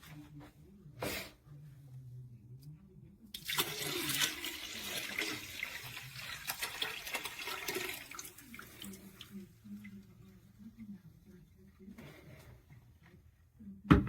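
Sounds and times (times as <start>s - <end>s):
water running and splashing: 3.4s - 9.4s.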